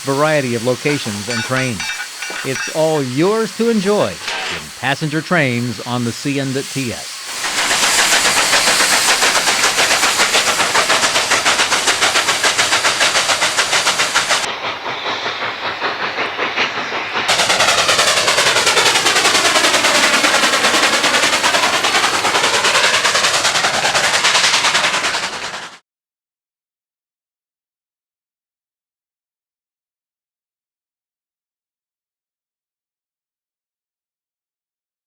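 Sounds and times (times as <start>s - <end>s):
steam locomotive exhaust chuffing: 0.0s - 25.8s.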